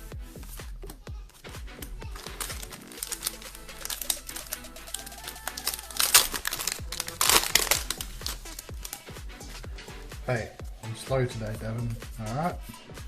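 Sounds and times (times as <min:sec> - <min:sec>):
background music: 0:00.0 - 0:13.0
cards and foil wrappers crinkling: 0:02.0 - 0:09.2.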